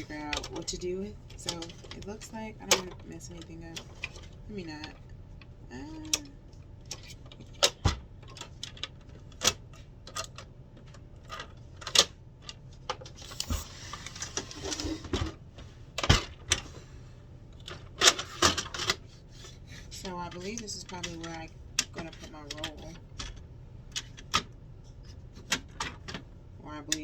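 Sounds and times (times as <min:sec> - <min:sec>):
plastic parts clicking and knocking: 0:17.6 - 0:26.3.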